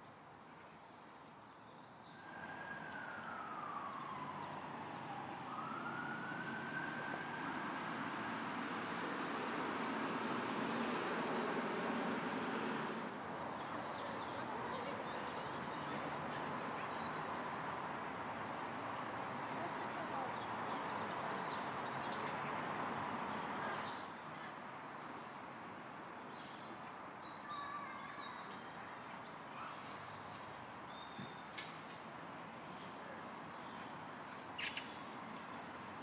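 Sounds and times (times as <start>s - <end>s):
siren wailing: 2.6s - 8.0s.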